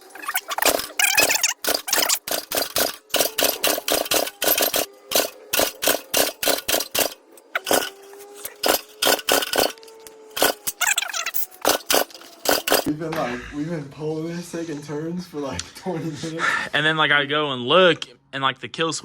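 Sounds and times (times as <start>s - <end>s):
small engine being pull-started: 0.0s - 12.9s.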